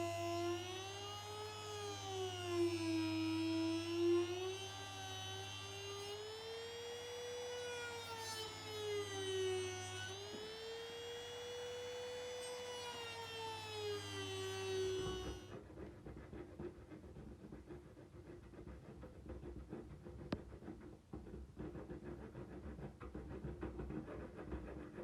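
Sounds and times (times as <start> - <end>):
electric motor whining: 0.0 - 15.5.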